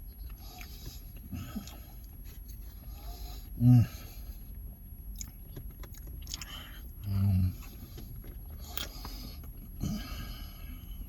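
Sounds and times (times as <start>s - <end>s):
person chewing food: 0.0s - 2.2s, 4.4s - 11.0s
low voiced hum: 0.0s - 4.9s, 6.3s - 11.0s.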